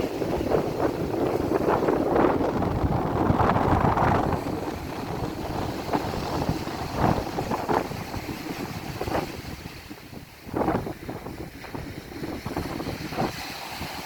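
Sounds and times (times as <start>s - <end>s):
ocean surf breaking: 0.0s - 14.0s
wind buffeting microphone: 0.0s - 14.0s.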